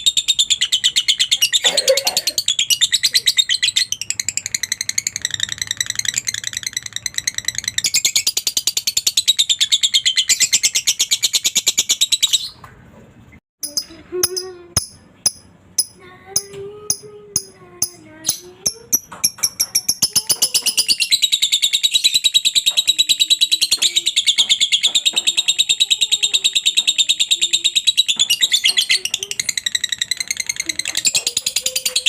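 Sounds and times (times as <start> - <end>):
lovebird rapid high chirps: 0.0 - 12.6, 13.6 - 32.0
bird clicks with pitched tone: 13.6 - 32.0.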